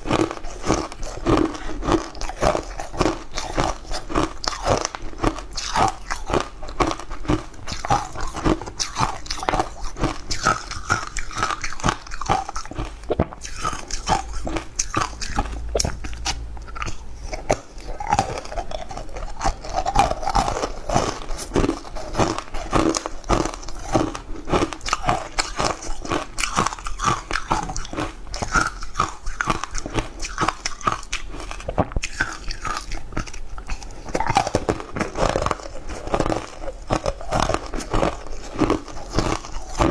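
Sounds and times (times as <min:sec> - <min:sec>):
crunchy chewing: 0:00.0 - 0:39.9.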